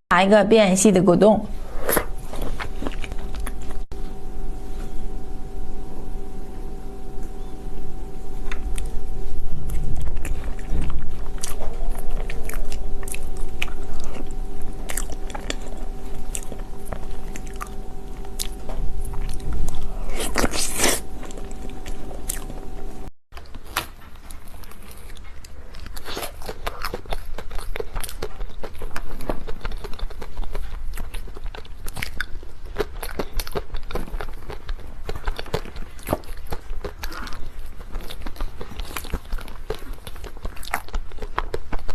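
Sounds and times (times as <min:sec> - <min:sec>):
steady hum: 0:00.1 - 0:23.1
person chewing and crunching: 0:01.6 - 0:05.0, 0:07.2 - 0:41.9.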